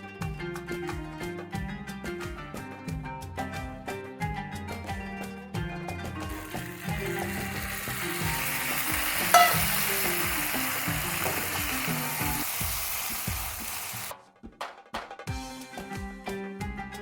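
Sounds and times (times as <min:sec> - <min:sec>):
background music: 0:00.0 - 0:17.0
food sizzling in a pan: 0:06.3 - 0:14.1.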